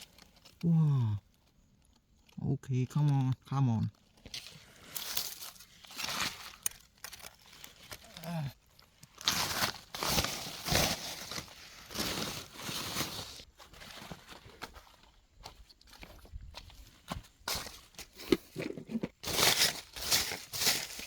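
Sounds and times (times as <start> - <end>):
dry leaves rustling and crunching: 0.0 - 0.6, 4.0 - 18.2, 19.2 - 21.0.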